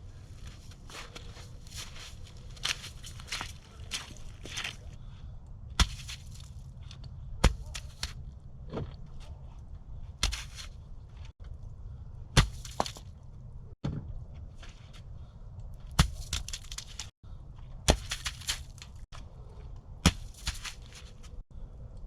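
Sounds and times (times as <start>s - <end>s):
bricks knocking and scraping: 12.4s - 13.1s, 15.9s - 16.9s, 17.8s - 19.0s.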